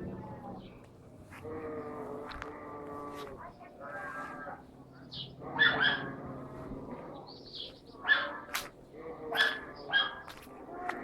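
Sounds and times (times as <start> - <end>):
animal calling in loud cries: 5.4 - 6.4, 8.0 - 11.0.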